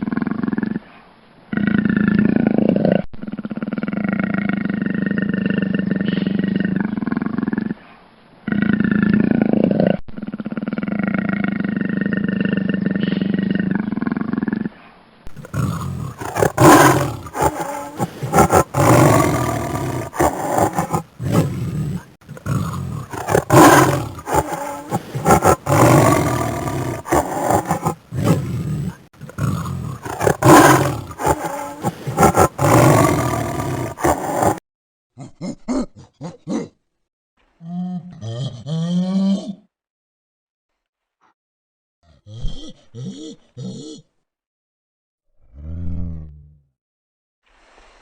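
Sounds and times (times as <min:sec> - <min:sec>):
big cat roaring and growling: 0:08.5 - 0:34.6, 0:45.4 - 0:46.5
animal call: 0:15.4 - 0:34.6.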